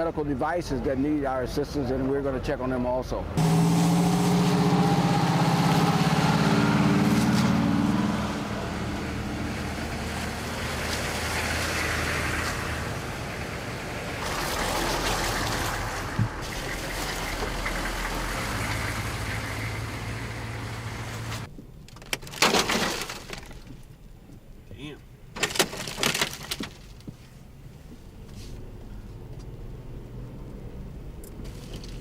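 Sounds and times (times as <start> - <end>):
road and tyre noise: 0.0 - 32.0
heavy vehicle engines pulling away: 3.4 - 21.5.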